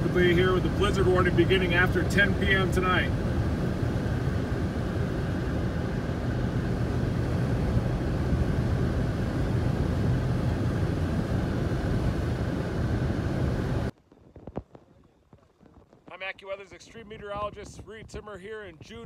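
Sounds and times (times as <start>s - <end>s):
engine and tyre drone: 0.0s - 13.9s.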